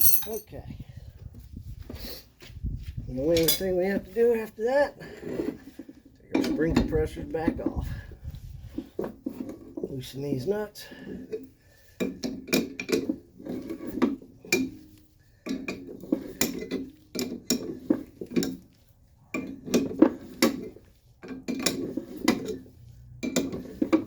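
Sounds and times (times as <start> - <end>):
metal tools clinking: 0.0 - 0.6, 3.3 - 3.7.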